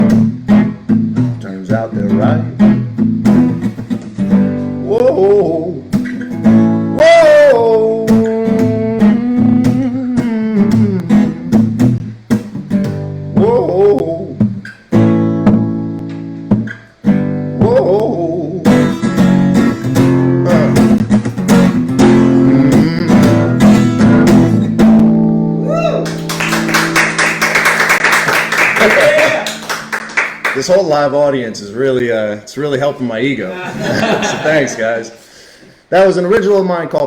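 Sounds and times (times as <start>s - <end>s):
strummed acoustic guitar: 0.0s - 28.2s
man singing: 1.4s - 2.5s, 4.8s - 5.9s, 7.0s - 11.7s, 13.4s - 14.4s, 17.6s - 18.7s, 20.4s - 21.0s, 22.2s - 24.0s
audience applause: 26.0s - 30.6s.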